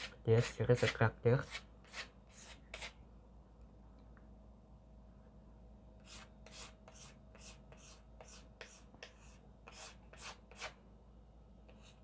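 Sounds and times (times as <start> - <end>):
scraping strokes on a wall: 6.0 - 10.8.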